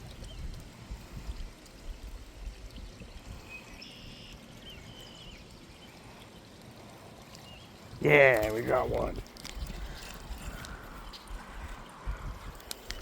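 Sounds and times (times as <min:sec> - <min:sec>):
creek water running: 0:00.0 - 0:13.0
faint bird chirps: 0:03.4 - 0:06.0.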